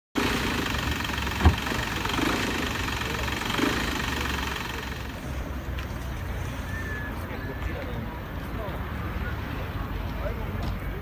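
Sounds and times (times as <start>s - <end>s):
car engine idling: 0.2s - 8.5s
thump: 1.4s - 1.7s.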